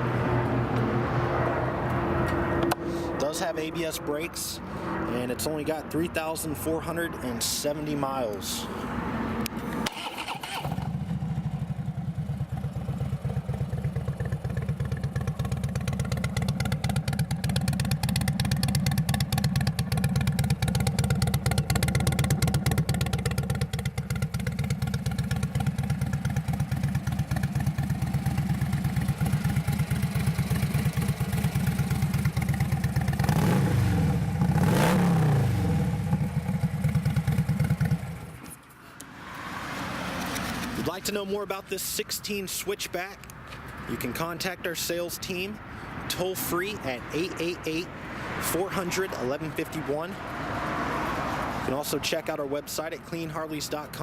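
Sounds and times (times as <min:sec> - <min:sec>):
motorcycle engine idling: 0:10.0 - 0:34.6, 0:35.5 - 0:38.4.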